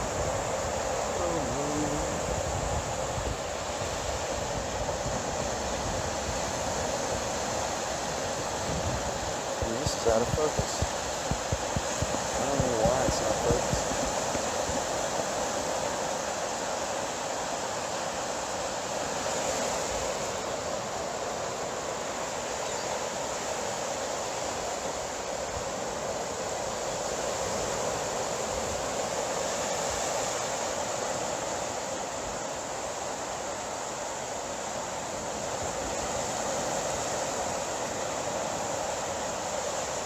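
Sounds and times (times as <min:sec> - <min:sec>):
ocean surf washing: 0:00.0 - 0:40.0.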